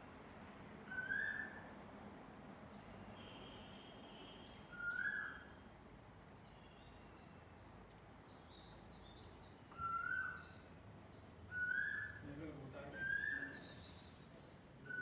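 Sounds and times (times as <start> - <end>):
bird whistled call: 0.9 - 1.6, 4.7 - 5.5, 9.8 - 10.7, 11.5 - 12.2, 13.0 - 14.0.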